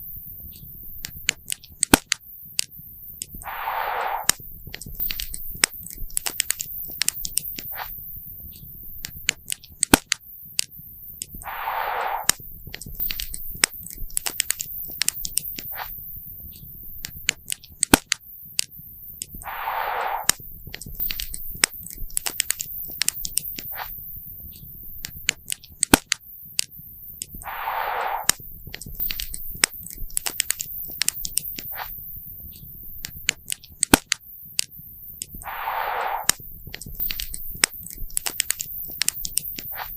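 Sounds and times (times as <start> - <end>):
brief hiss: 3.4 - 4.4, 11.4 - 12.4, 19.4 - 20.4, 27.4 - 28.4, 35.4 - 36.5.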